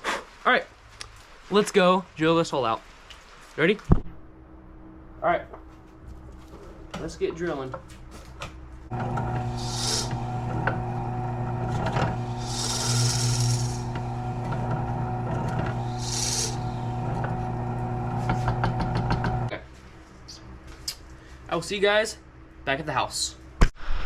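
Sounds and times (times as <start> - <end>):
drill bit boring into wood: 8.9 - 19.5
drill press motor hum: 8.9 - 19.5.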